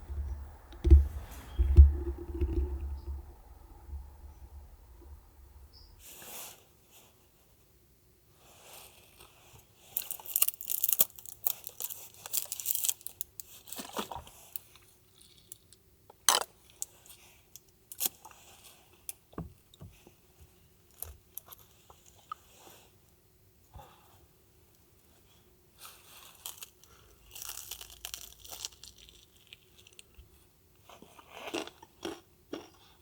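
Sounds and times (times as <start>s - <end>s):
clicks and knocks: 0.0s - 6.0s.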